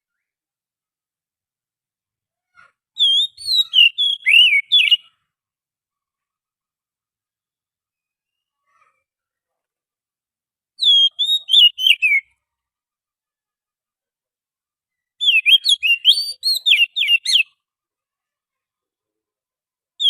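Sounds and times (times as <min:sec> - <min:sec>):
bird song whistled notes: 0:03.0 - 0:05.2, 0:07.9 - 0:08.6, 0:10.8 - 0:12.4, 0:14.9 - 0:17.6.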